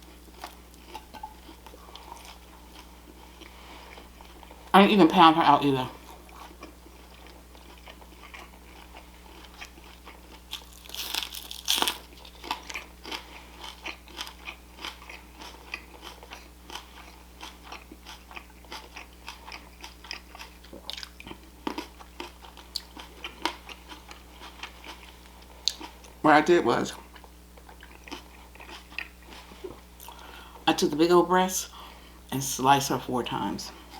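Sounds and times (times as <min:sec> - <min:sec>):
person chewing crunchy food: 0:00.0 - 0:04.7, 0:06.0 - 0:26.2, 0:27.0 - 0:30.6.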